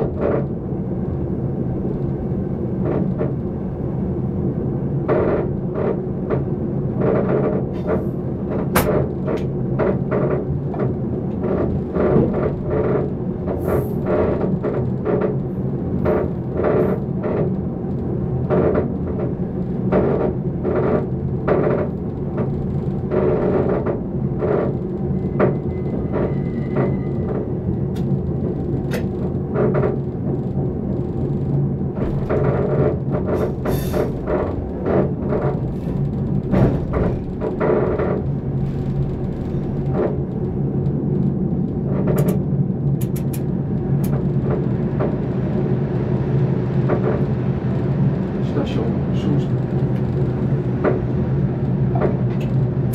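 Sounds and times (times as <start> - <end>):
sustained low drone: 22.4 - 52.9.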